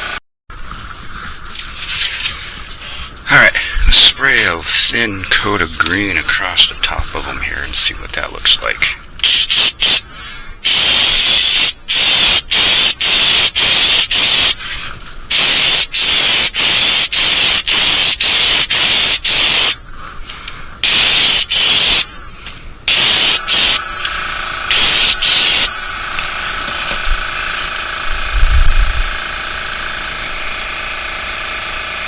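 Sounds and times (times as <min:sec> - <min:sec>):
faint steady hum: 0:00.6 - 0:32.0
airbrush spraying hissing bursts: 0:09.2 - 0:10.0, 0:10.6 - 0:14.6, 0:15.3 - 0:19.8, 0:20.8 - 0:22.1, 0:22.9 - 0:23.8, 0:24.7 - 0:25.7.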